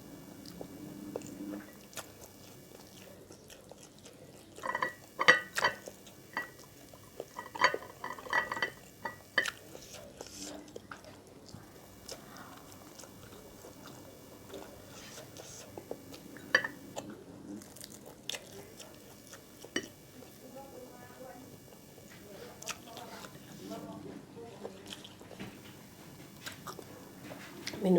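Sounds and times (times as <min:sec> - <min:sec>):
person chewing and crunching: 0:00.4 - 0:20.4, 0:24.6 - 0:27.8.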